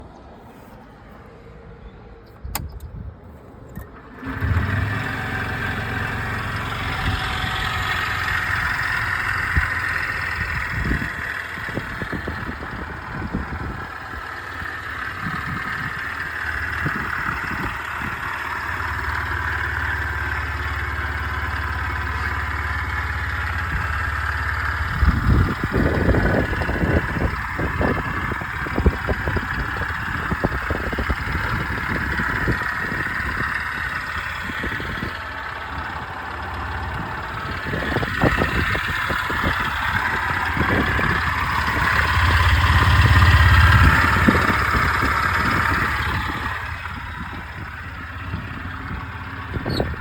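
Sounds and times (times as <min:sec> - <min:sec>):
click: 0:02.2 - 0:02.9
scooter engine running: 0:03.8 - 0:50.0.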